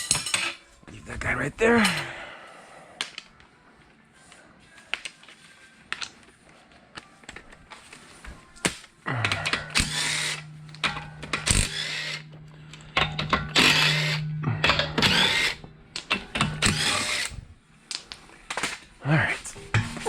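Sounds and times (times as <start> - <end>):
tools clicking and knocking: 9.2 - 18.8, 19.5 - 20.0
power drill running: 9.4 - 17.4.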